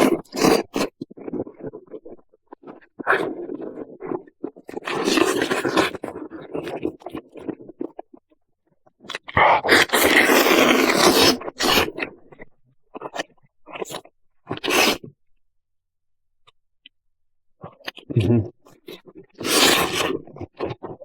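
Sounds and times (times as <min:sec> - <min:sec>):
person chewing meat: 0:09.0 - 0:15.0, 0:17.6 - 0:21.0.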